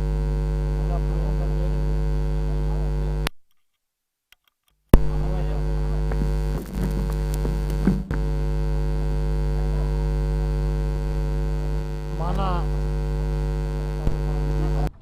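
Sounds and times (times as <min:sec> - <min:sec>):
electrical mains hum: 0:00.0 - 0:03.3, 0:05.0 - 0:15.0
sharp clicks: 0:06.0 - 0:08.8.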